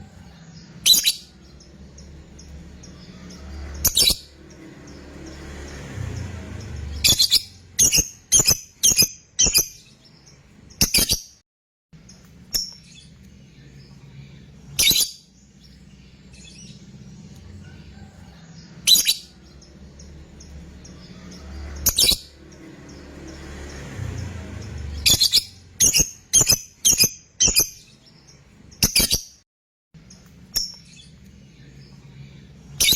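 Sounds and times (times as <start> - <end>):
lovebird shrill calls: 6.9 - 9.9, 18.8 - 19.3.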